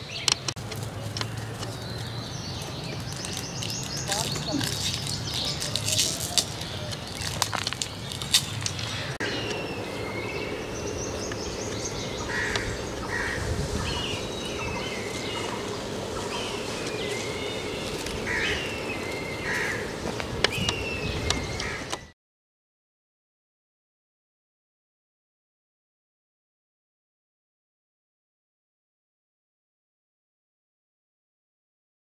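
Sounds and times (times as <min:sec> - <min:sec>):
birds chirping: 0:00.0 - 0:22.2
sharp clicks and knocks: 0:00.2 - 0:01.8.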